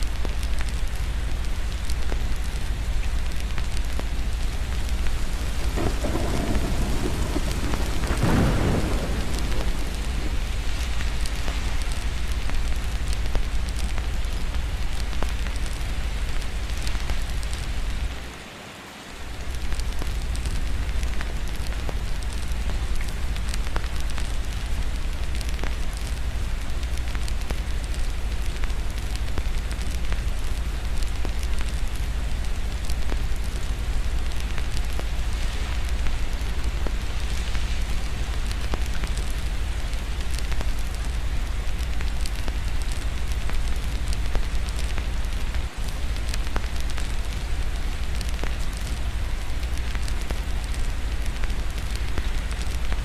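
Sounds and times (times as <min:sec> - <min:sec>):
rain: 0:00.0 - 0:53.0
fireplace crackling: 0:00.2 - 0:18.3, 0:19.4 - 0:53.0
distant thunder rumbling: 0:03.9 - 0:14.2.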